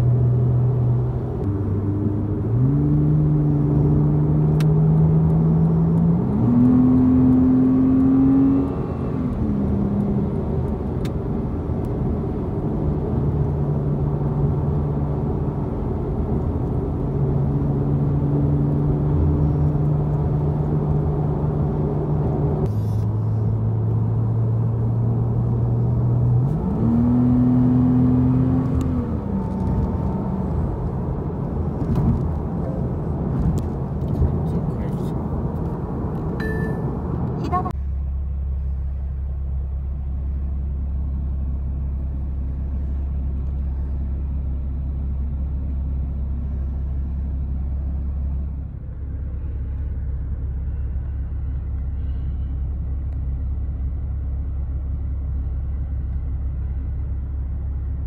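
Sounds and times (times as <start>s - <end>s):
tyre and road noise: 0.0s - 39.4s
car engine from inside cabin: 0.0s - 58.0s.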